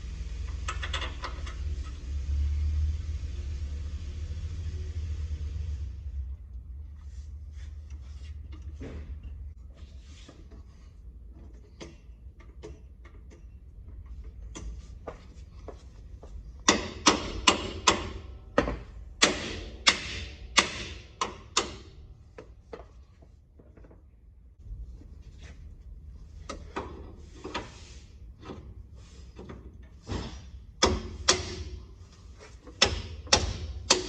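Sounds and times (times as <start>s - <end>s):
hammer striking heavy metal: 19.2s - 21.9s.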